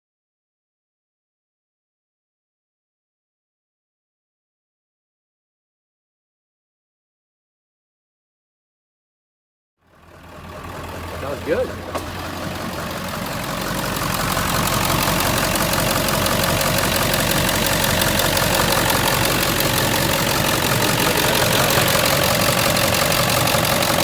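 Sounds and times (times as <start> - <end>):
diesel engine idling: 9.9 - 24.0.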